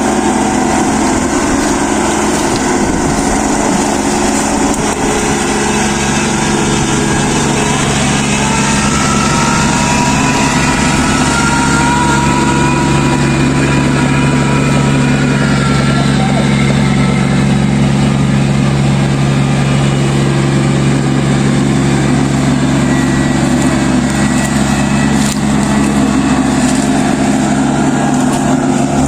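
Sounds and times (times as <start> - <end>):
combine harvester running: 0.0 - 29.0
low hum: 0.0 - 29.0
faint high whining tones: 0.4 - 20.1.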